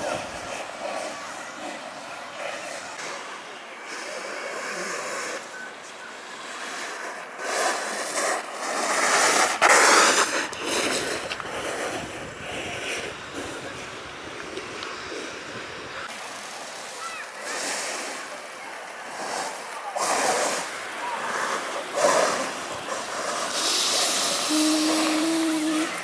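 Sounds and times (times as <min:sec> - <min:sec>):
wind on microphone: 0:00.0 - 0:01.2, 0:08.9 - 0:16.1
snowboard sliding on snow: 0:00.0 - 0:26.0.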